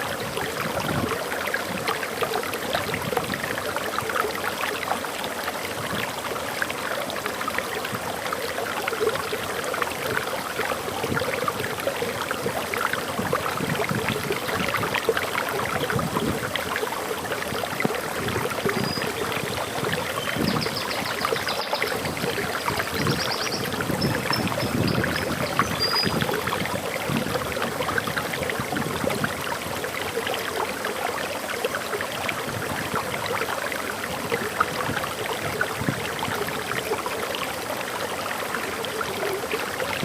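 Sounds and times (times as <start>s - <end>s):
waterfall rushing: 0.9s - 32.8s
bird chirping: 22.9s - 26.2s.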